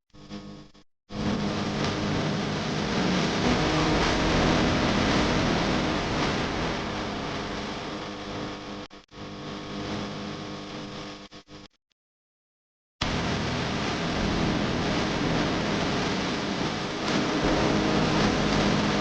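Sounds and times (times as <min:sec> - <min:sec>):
diesel engine running: 0:01.2 - 0:08.5, 0:13.1 - 0:19.0.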